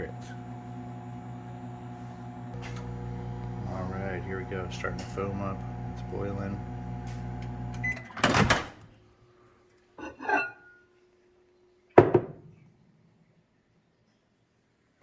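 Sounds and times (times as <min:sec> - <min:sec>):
microwave oven humming: 0:00.0 - 0:08.1
microwave beep: 0:07.6 - 0:08.2.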